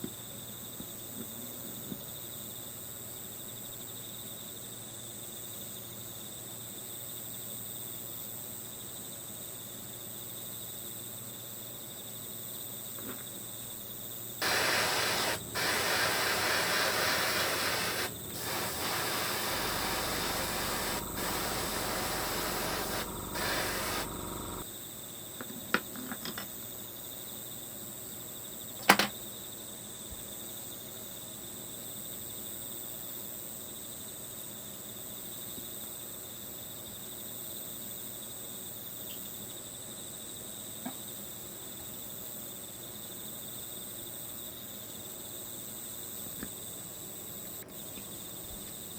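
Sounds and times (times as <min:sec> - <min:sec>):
crickets chirping: 0:00.1 - 0:25.4, 0:33.7 - 0:48.9
spraying air hiss: 0:14.4 - 0:24.6.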